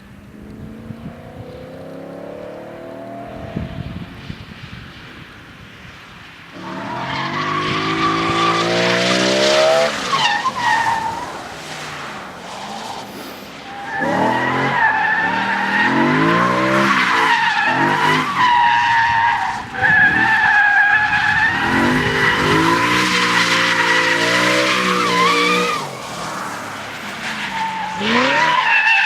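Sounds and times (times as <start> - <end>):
car engine revving: 0.2 - 4.2, 6.6 - 10.8.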